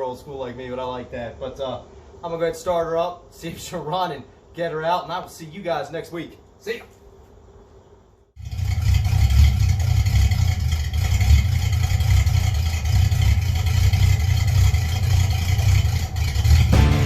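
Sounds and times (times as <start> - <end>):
engine idling with uneven rumble: 8.8 - 17.0.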